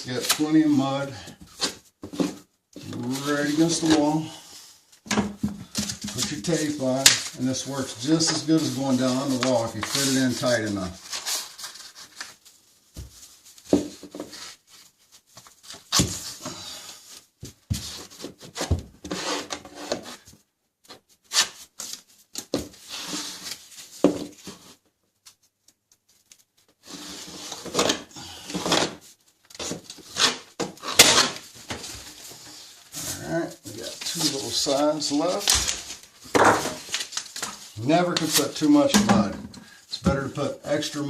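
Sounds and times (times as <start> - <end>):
drywall knife scraping: 18.5 - 20.2, 29.6 - 31.4.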